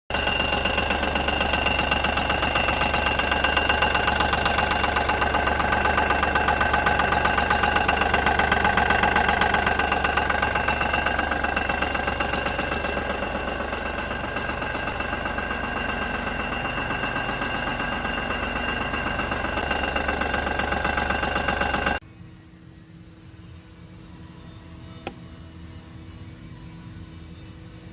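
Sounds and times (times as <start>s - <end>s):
car engine running: 0.1s - 22.0s
rapid regular knocking from gearbox: 0.1s - 22.0s.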